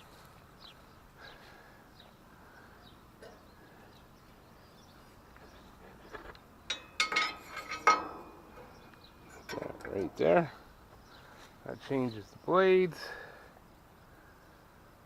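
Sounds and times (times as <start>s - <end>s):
bird chirps: 0.6s - 12.7s
metallic clinks and knocks: 6.7s - 10.2s.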